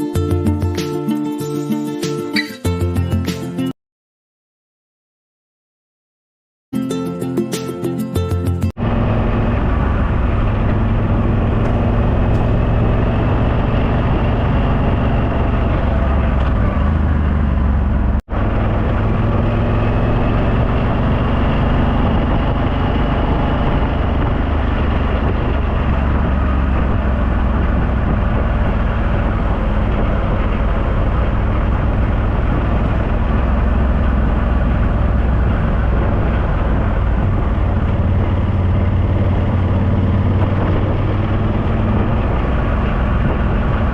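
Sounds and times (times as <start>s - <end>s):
motorcycle engine running: 8.8s - 43.9s
wind rushing over microphone: 8.8s - 43.9s.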